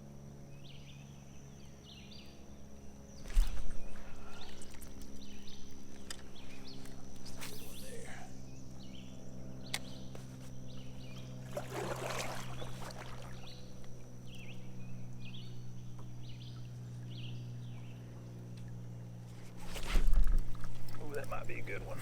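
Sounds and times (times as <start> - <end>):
steady low hum: 0.0 - 22.0
water and hull sounds: 10.2 - 14.4, 15.9 - 22.0
water splash: 11.5 - 13.5.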